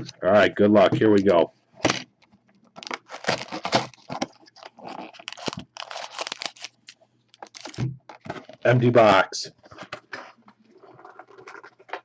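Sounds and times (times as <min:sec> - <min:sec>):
wrapper crinkling and tearing: 0:02.7 - 0:08.7.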